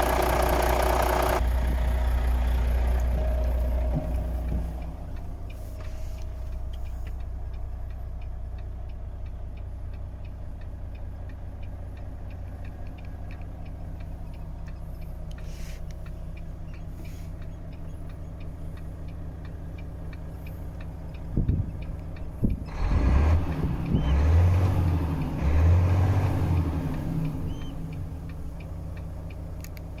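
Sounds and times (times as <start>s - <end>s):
truck engine revving: 0.0s - 5.1s, 21.3s - 29.2s
diesel truck engine idling: 0.0s - 30.0s.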